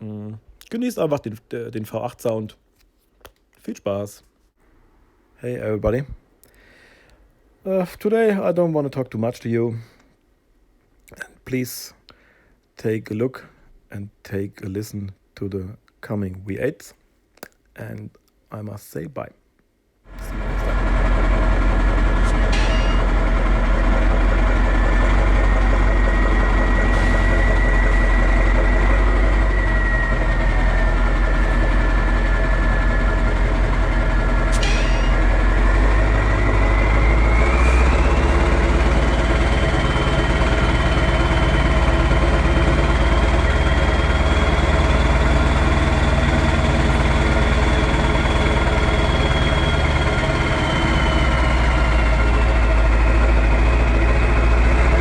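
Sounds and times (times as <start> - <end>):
diesel truck engine idling: 20.1 - 55.0
high engine whine: 20.1 - 55.0.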